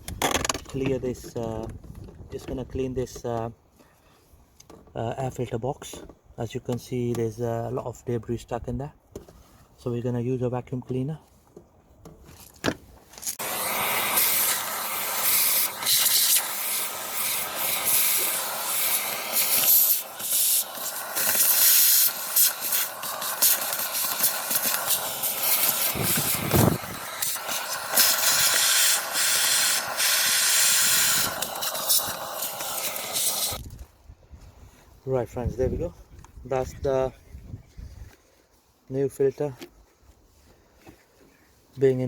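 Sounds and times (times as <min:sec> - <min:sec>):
vacuum cleaner suction: 0:13.3 - 0:33.6.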